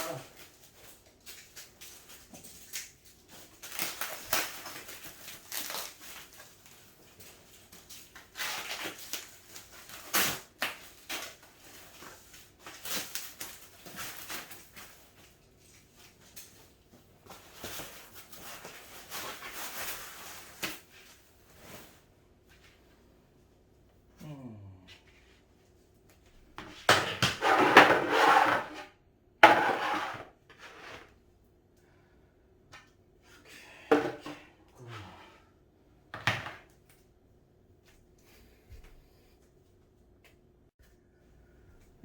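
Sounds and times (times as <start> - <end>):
packaging rustling and crackling: 0.2 - 16.6.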